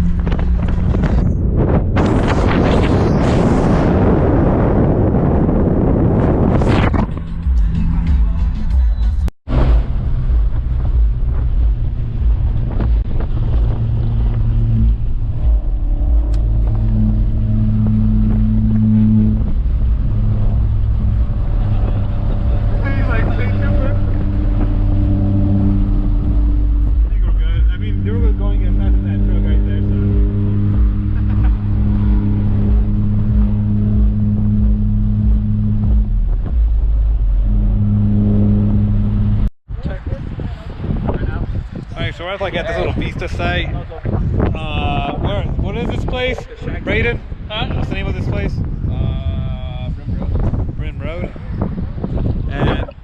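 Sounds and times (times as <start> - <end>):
vehicle engine droning: 0.0 - 2.2, 4.0 - 41.4
wind buffeting microphone: 0.0 - 7.8, 9.5 - 53.0.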